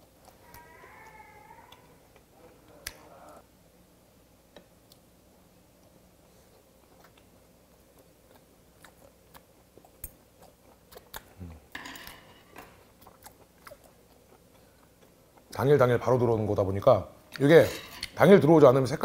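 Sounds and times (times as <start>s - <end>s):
person chewing: 5.8s - 11.7s, 12.6s - 15.6s.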